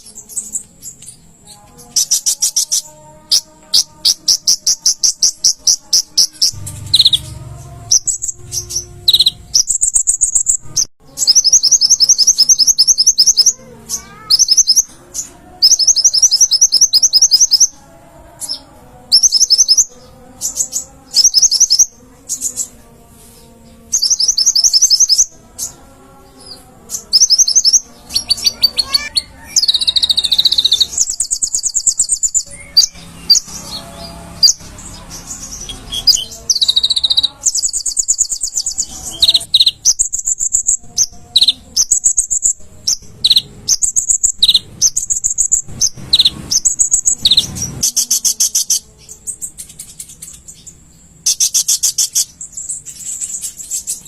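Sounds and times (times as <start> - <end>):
bird singing buzzy trills: 0.0 - 54.0.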